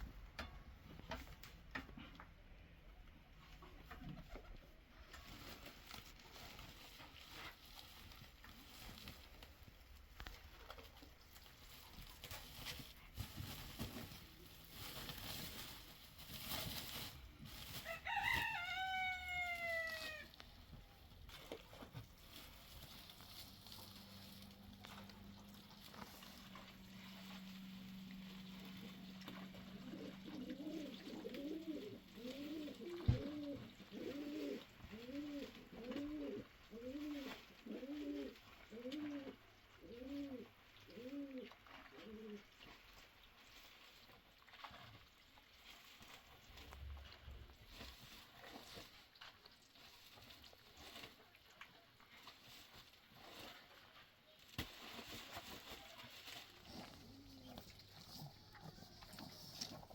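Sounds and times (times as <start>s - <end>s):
rustling: 3.4s - 39.5s, 40.1s - 59.9s
rooster crowing: 17.8s - 20.3s.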